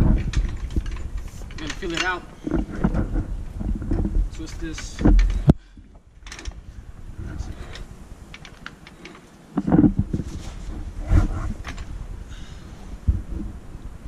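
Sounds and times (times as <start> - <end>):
floor jack scraping rumble: 0.0 - 5.5, 9.6 - 12.2.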